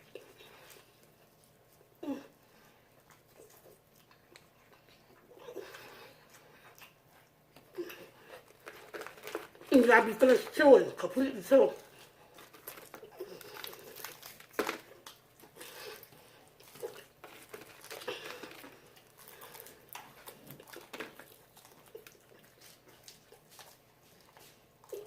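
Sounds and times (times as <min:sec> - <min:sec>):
crunching fried chicken: 0:08.1 - 0:09.8, 0:11.8 - 0:25.0.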